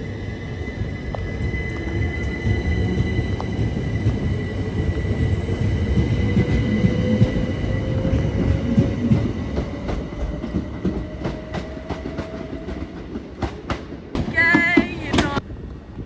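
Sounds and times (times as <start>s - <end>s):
train rumbling on rails: 0.0s - 16.0s
wheels clicking over rail joints: 8.7s - 15.4s.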